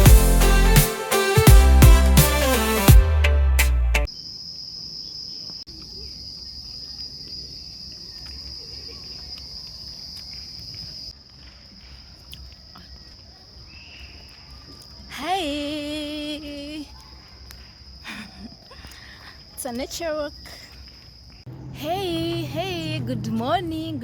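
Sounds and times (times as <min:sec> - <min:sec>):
low outdoor rumble: 0:21.5 - 0:24.0.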